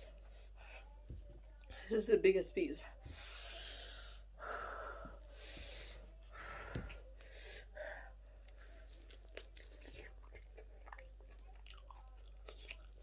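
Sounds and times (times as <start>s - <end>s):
chewing chicken wing: 8.2s - 13.0s.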